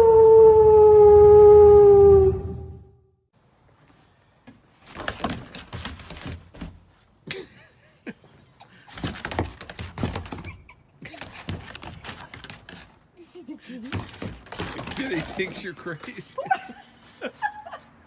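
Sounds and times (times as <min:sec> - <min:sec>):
knocks and thumps: 0:13.9 - 0:15.8.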